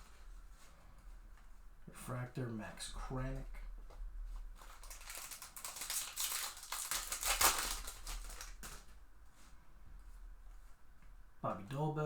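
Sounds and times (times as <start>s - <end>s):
trading cards rustling: 4.6s - 8.9s.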